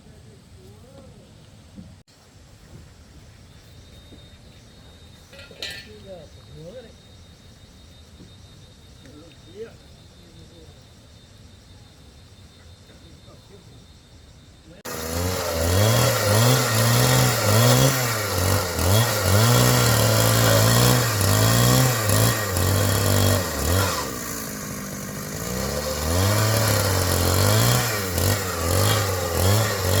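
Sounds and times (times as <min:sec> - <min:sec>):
power tool motor running: 0:14.8 - 0:30.0.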